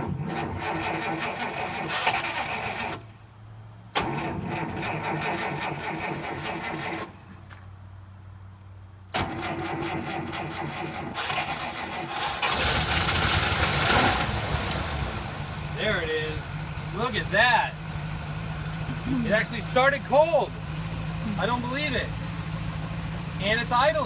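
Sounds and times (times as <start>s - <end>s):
starter motor cranking engine: 0.0s - 3.0s, 4.0s - 7.1s, 9.2s - 15.2s
car engine running: 12.4s - 24.0s.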